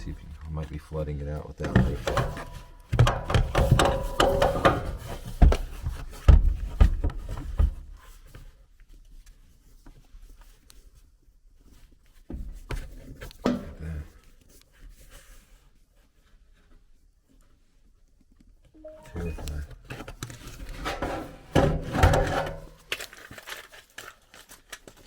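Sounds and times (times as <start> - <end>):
handling knocks and clatter: 1.5 - 8.5, 19.9 - 25.0.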